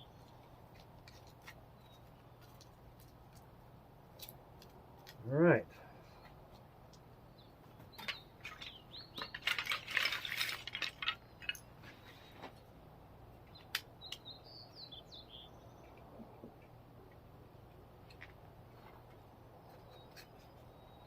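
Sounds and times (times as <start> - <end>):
metal parts and tools clinking: 8.0 - 12.2.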